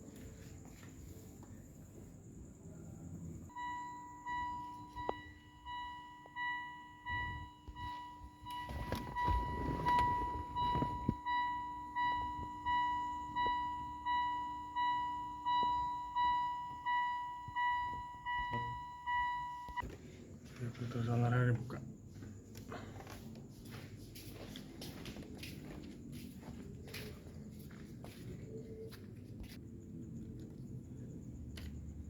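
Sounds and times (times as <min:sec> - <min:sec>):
car warning chime dinging: 0:03.5 - 0:19.8.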